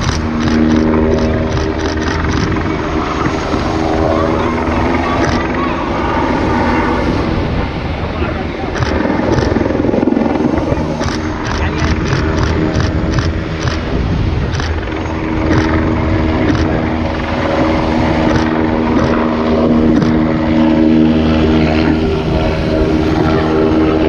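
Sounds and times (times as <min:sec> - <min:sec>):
sharp ticks: 0:00.0 - 0:03.8, 0:05.2 - 0:05.6, 0:08.7 - 0:20.3
helicopter flying by: 0:00.0 - 0:24.0.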